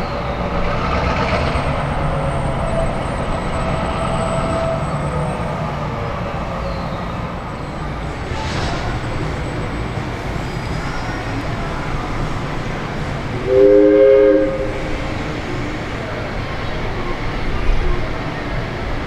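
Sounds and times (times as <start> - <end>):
diesel locomotive rumbling: 0.0 - 19.0
locomotive horn blast: 13.4 - 15.0.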